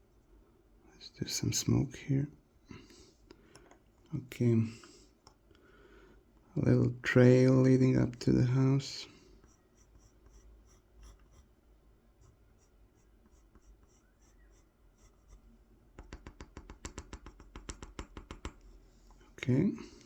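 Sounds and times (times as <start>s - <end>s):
pencil scratching on wood: 9.4s - 11.6s, 12.2s - 18.7s.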